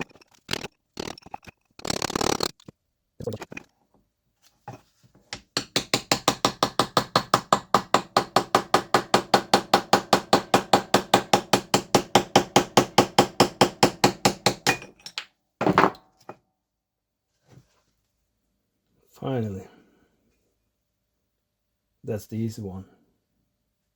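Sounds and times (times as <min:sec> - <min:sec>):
hammer tapping on metal: 0:05.4 - 0:14.8.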